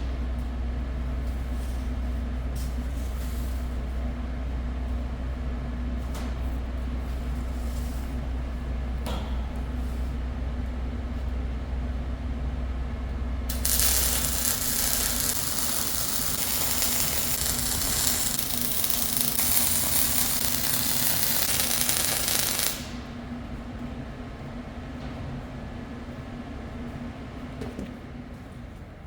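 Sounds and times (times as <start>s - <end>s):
low workshop hum: 0.0s - 29.0s
welding crackling hiss: 13.5s - 23.1s.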